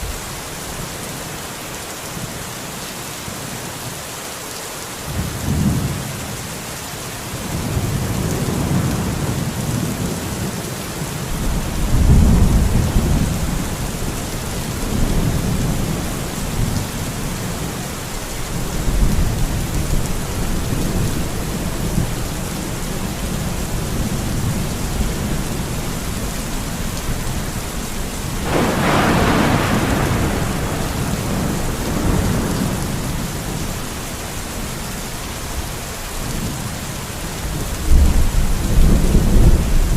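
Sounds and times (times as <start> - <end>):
steady rain: 0.0 - 39.9
rolling thunder: 11.3 - 17.8, 28.2 - 34.0, 37.7 - 39.9.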